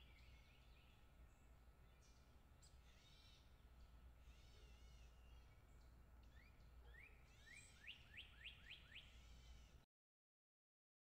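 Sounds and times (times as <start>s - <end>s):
faint bird chirps: 4.2s - 9.8s.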